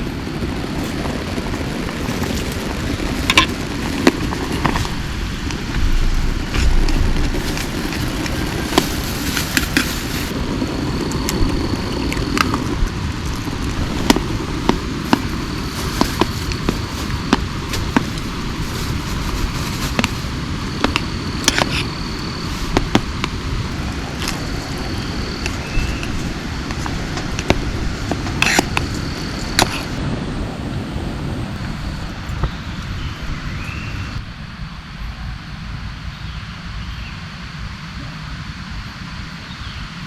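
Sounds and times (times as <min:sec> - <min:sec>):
heavy rain: 0:00.0 - 0:32.9.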